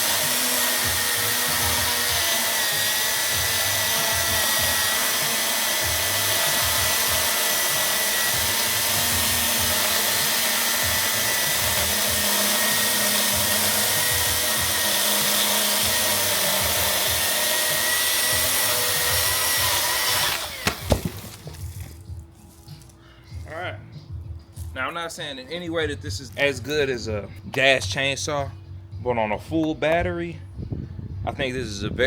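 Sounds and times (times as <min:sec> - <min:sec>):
cordless chainsaw whining: 0:00.0 - 0:22.0
sharp knocks: 0:20.5 - 0:21.6.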